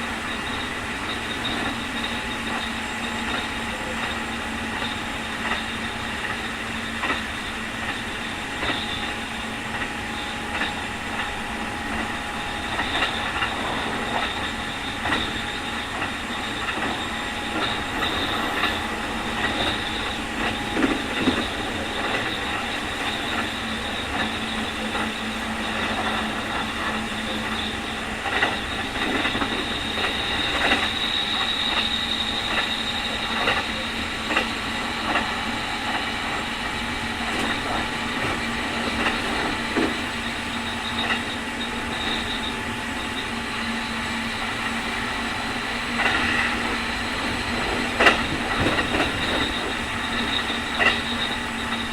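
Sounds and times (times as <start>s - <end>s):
electric train drive whine: 0.0s - 51.9s
train rumble: 0.0s - 51.9s
wheels clicking over rail joints: 44.5s - 51.9s.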